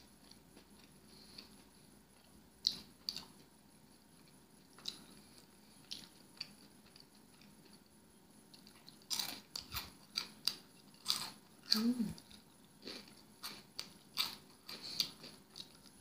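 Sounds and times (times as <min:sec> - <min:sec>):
chewing with mouth clicks: 0:00.2 - 0:03.5, 0:04.2 - 0:07.9, 0:08.5 - 0:16.0
crunching: 0:08.5 - 0:11.4.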